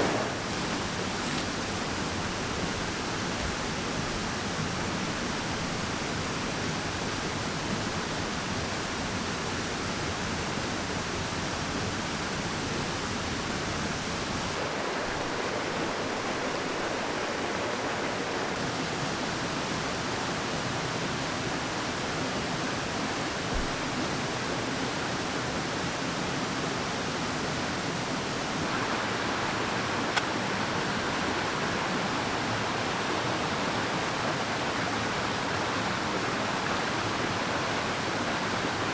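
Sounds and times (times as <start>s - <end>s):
stream water rushing: 0.0s - 38.9s
soft thump: 23.5s - 23.9s.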